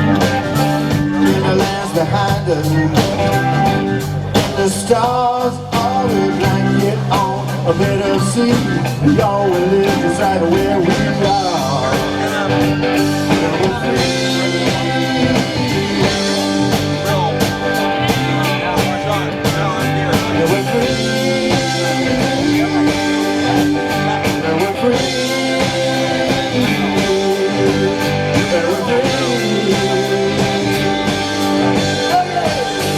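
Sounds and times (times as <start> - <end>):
live rock band playing: 0.0 - 32.9
person singing: 0.0 - 32.9.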